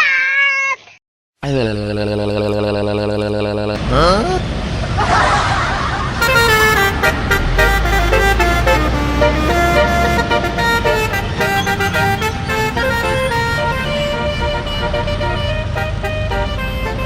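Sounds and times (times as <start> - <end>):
bus horn playing a tune: 6.2 - 17.0.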